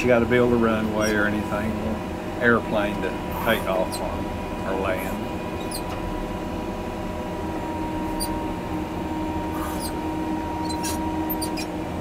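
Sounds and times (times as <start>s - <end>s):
short high machine squeaks: 1.0s - 1.3s, 5.6s - 6.0s, 8.1s - 8.4s, 9.5s - 10.0s, 10.6s - 11.8s.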